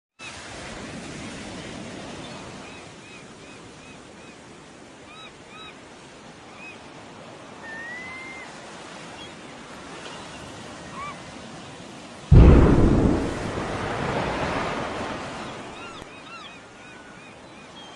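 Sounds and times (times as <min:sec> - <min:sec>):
sea surf rushing: 0:12.3 - 0:16.6.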